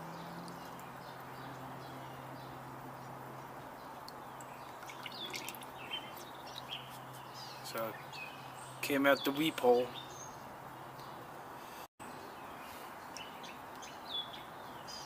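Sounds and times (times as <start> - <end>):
bird chirps: 3.8 - 10.4.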